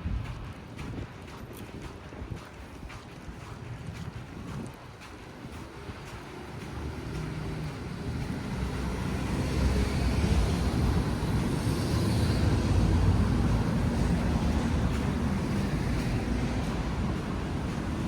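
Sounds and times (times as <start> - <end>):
large vehicle rumbling: 5.2 - 18.0.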